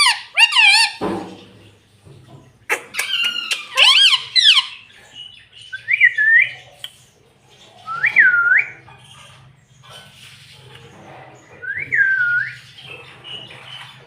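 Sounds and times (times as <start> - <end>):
parrot clicks and squawks: 2.7 - 4.5.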